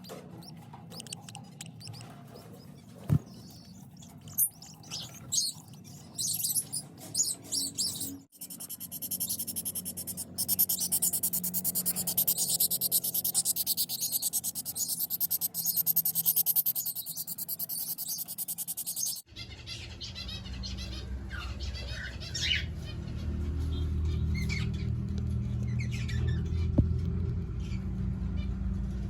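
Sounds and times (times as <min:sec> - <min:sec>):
birds chirping: 0:00.0 - 0:26.9
fast rasping pulse: 0:08.4 - 0:19.2
low steady rumble: 0:19.6 - 0:29.0.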